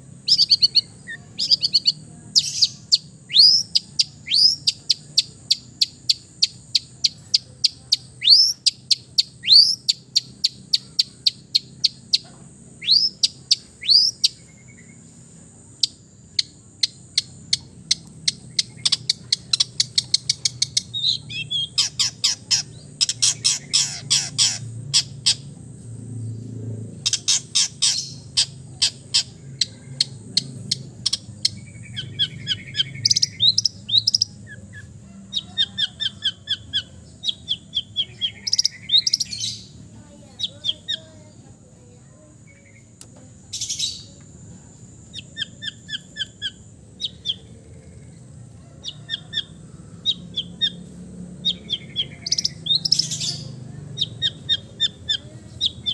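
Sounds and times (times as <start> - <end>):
bird singing varied song: 0.0 - 55.9.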